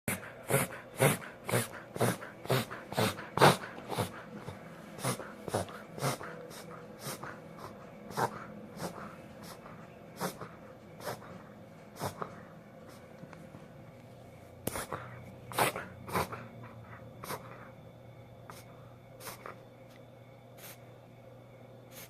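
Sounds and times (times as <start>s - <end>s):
dog reverse sneezing: 5.0s - 9.6s, 12.0s - 12.3s, 14.7s - 16.5s, 18.5s - 19.6s.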